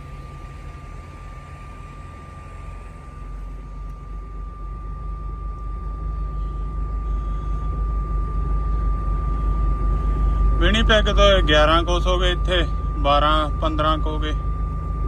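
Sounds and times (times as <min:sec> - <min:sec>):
diesel truck engine pulling away: 0:00.0 - 0:03.6.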